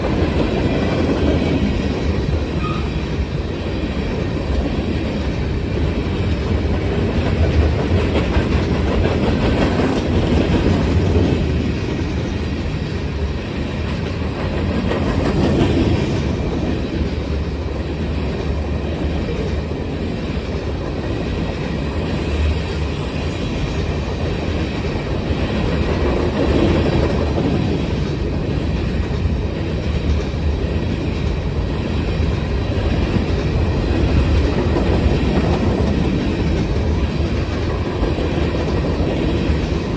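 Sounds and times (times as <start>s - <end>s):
freight train wheels clacking: 0.0s - 39.9s.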